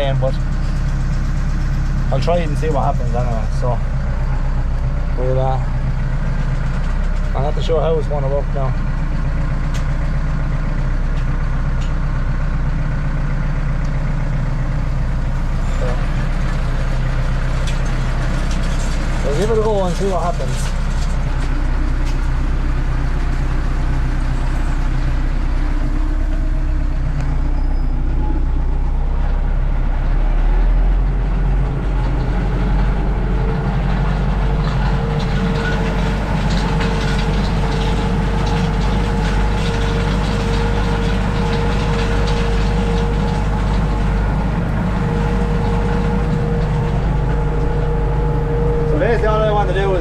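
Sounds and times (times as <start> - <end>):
tractor engine running: 0.0 - 50.0
steady whine: 17.6 - 50.0.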